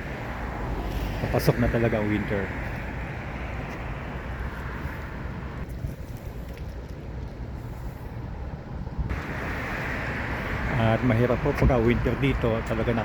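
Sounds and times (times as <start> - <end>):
low rumble of street noise: 0.0 - 13.0.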